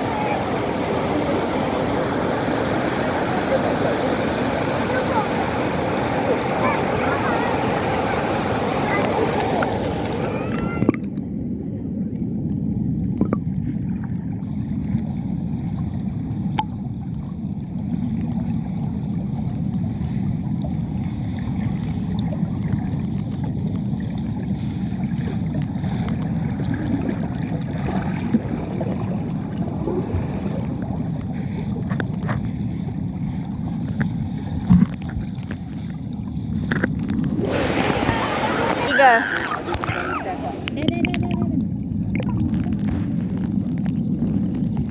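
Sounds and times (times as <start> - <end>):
rush of river water: 0.0 - 11.1, 19.9 - 43.8.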